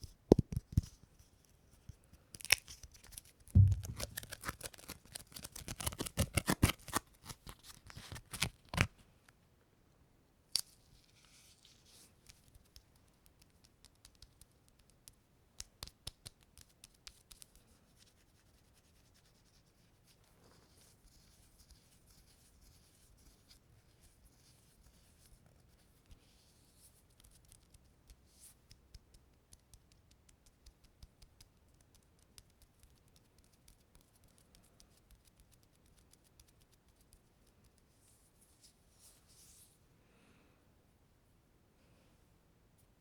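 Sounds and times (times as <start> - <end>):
sticky surface clicking and crackling: 2.4 - 8.7.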